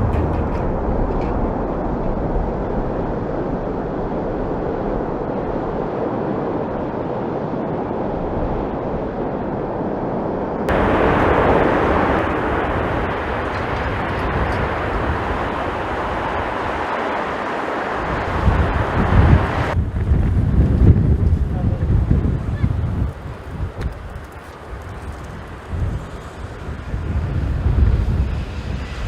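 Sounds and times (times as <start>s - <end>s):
rushing jet noise: 0.0s - 3.3s, 10.7s - 19.8s
wind rumbling on microphone: 0.0s - 29.0s.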